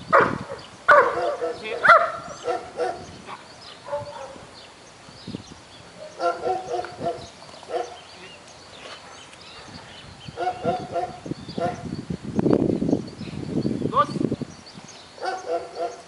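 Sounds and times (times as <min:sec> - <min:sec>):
small birds chirping: 0:00.0 - 0:16.0
dog barking: 0:00.1 - 0:03.1, 0:03.9 - 0:04.4, 0:06.0 - 0:08.0, 0:10.4 - 0:11.8, 0:15.2 - 0:16.0.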